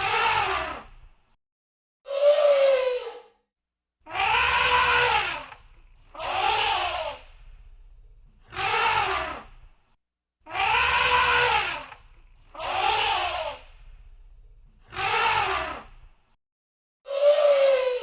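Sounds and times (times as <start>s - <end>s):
elephant trumpeting: 4.1s - 7.2s, 10.5s - 13.6s
low rumble: 7.2s - 8.4s, 13.7s - 14.8s.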